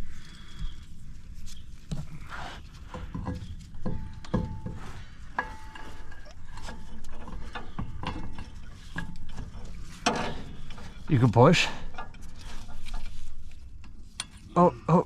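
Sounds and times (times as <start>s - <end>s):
metal tools clanking: 3.0s - 13.1s.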